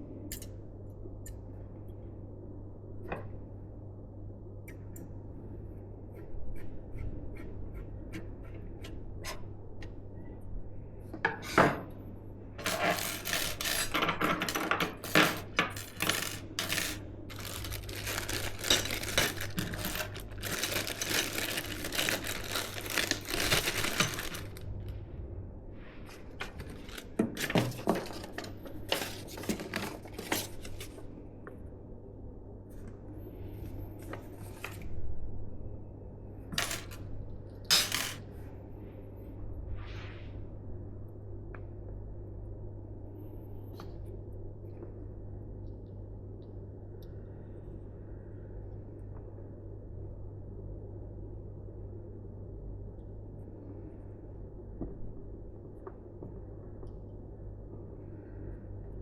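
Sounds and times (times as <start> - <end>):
steady low hum: 0.0 - 59.0
computer parts clinking and clattering: 12.6 - 24.6, 26.4 - 30.9, 36.6 - 37.0, 37.7 - 38.2.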